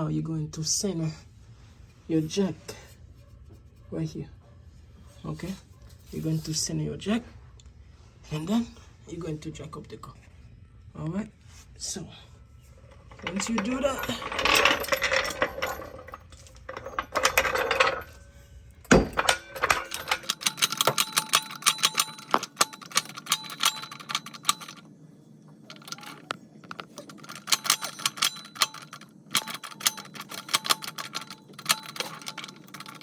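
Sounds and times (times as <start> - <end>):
floor jack metal clicking: 13.1 - 18.2, 18.8 - 24.8, 25.6 - 33.0.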